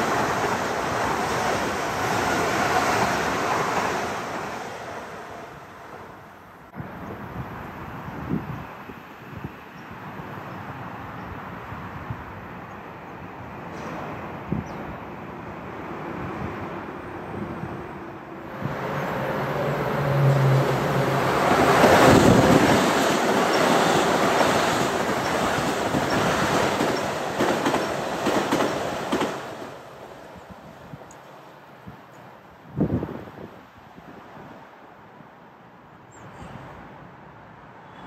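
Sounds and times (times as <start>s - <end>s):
train passing: 0.0s - 35.7s.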